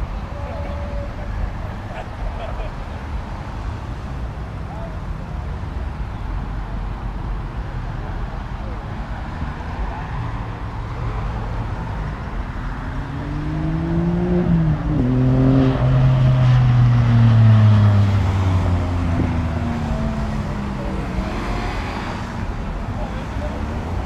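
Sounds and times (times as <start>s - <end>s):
car engine revving: 12.7s - 24.0s.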